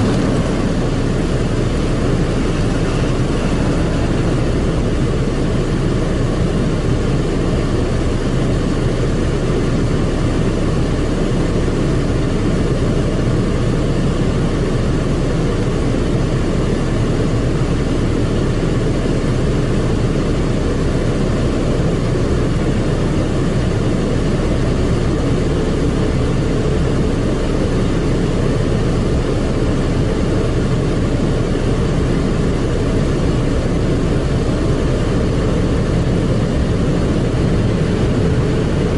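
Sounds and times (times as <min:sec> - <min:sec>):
car wash rumbling: 0:00.0 - 0:09.2, 0:19.3 - 0:38.9.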